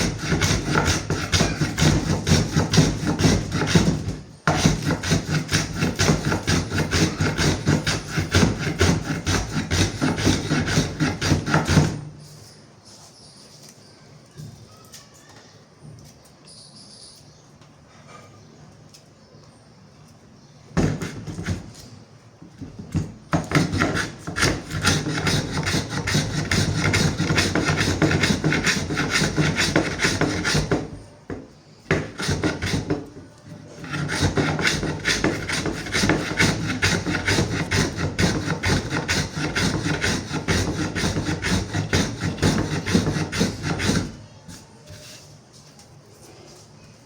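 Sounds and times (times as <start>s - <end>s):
rasp scraping wood: 0.0s - 12.2s, 20.8s - 21.9s, 22.7s - 31.0s, 31.9s - 45.2s.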